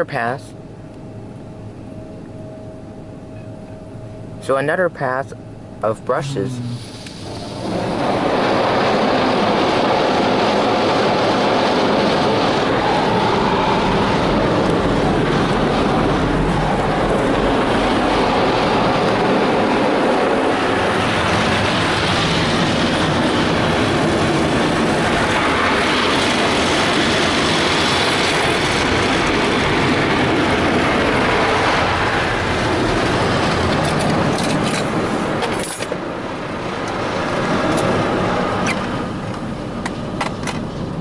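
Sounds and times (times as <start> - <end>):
water spraying: 6.6 - 8.1.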